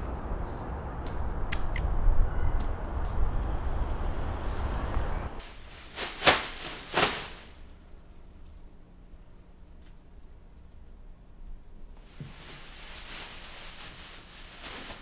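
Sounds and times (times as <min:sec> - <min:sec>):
city street traffic rumble: 0:00.0 - 0:07.6.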